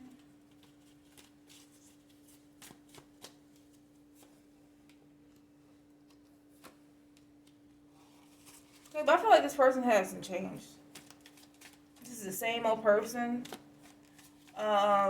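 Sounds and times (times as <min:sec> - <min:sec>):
faint low hum: 0:00.0 - 0:15.0
cards clicking and flicking: 0:13.4 - 0:14.6.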